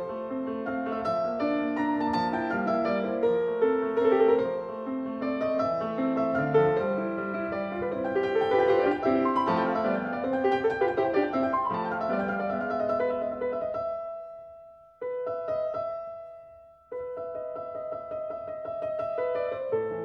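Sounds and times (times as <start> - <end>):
slow solo piano melody: 0.0 - 20.0.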